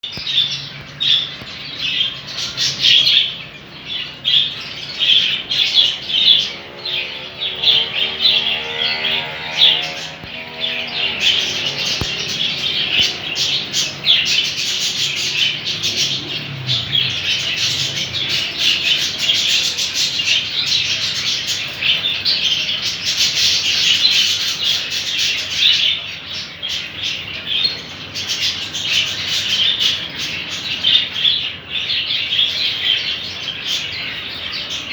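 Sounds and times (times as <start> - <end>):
caged birds chirping and squawking: 0.0 - 34.9.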